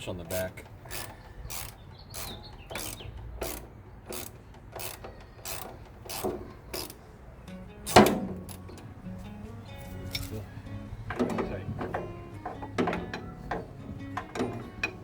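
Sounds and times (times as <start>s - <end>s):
ratchet wrench clicking: 0.0s - 7.0s, 7.8s - 8.8s.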